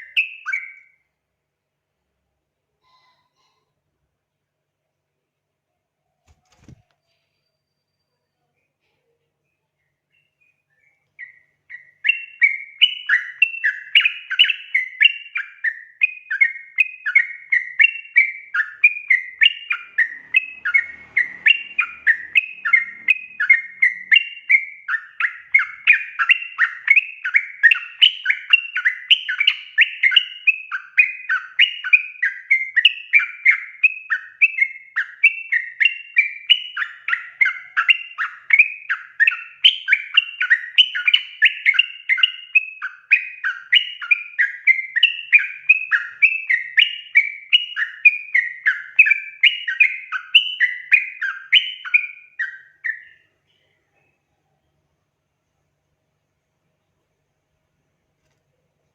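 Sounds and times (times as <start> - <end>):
bulbul singing: 0.0 - 1.1, 6.5 - 54.9.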